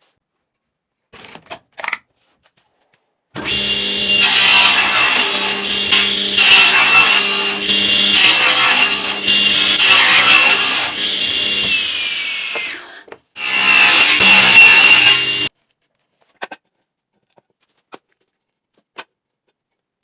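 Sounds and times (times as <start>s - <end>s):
power tool cutting wood: 3.4s - 15.5s.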